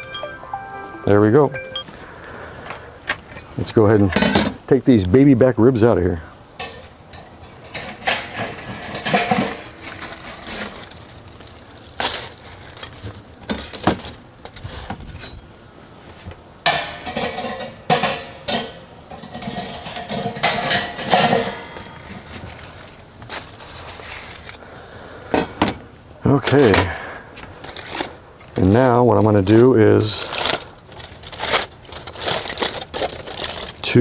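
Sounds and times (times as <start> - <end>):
metal basket clanking: 6.6 - 14.2, 16.7 - 23.5.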